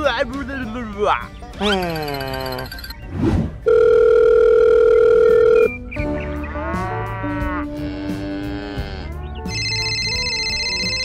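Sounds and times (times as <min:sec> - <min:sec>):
wavering low comic call: 0:01.6 - 0:02.9
steady electronic beep: 0:01.6 - 0:03.0
quick whoosh: 0:03.1 - 0:03.6.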